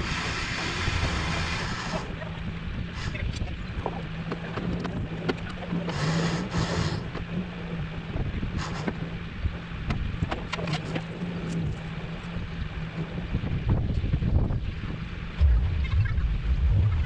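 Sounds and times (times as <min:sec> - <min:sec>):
low machine hum: 0:00.0 - 0:17.0
wind gusting on microphone: 0:13.3 - 0:17.0.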